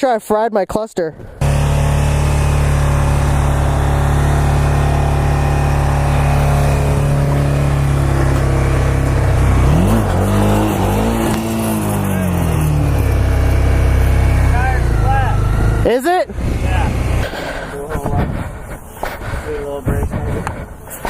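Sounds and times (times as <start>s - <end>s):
motorcycle engine idling and revving: 1.4s - 21.0s.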